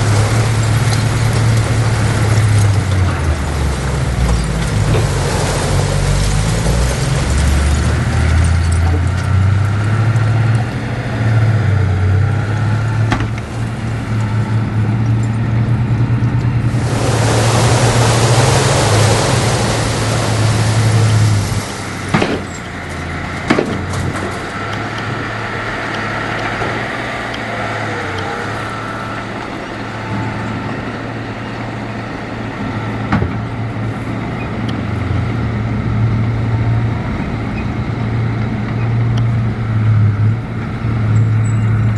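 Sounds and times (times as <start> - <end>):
heavy machinery diesel engines: 0.0 - 41.9
loud hiss: 16.6 - 22.1
sharp knocks: 22.1 - 22.6.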